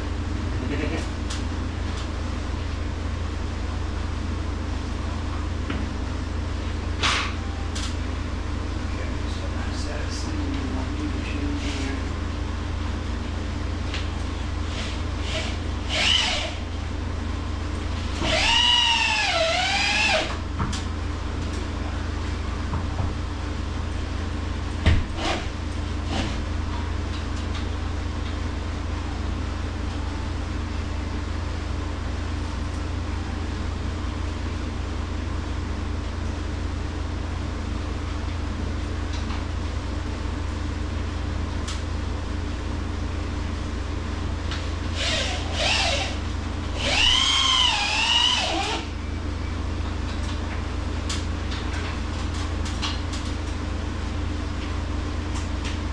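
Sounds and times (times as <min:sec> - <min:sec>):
low machine hum: 0:00.0 - 0:55.9
cordless drill driving a screw: 0:15.2 - 0:16.6, 0:18.2 - 0:20.3, 0:45.0 - 0:46.2, 0:46.8 - 0:48.8.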